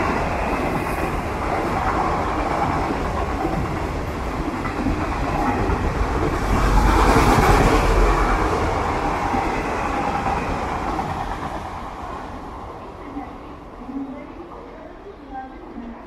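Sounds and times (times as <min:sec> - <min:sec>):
train wheels clattering over rails: 0:00.0 - 0:12.2.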